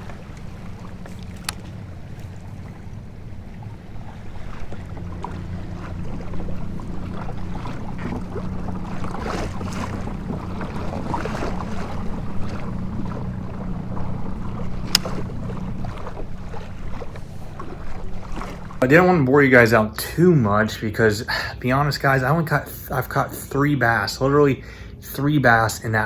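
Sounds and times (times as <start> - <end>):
electric trolling motor hum: 0.0 - 19.1
water splashing: 0.0 - 24.4
wind: 0.0 - 26.0
sharp click: 14.9 - 15.3.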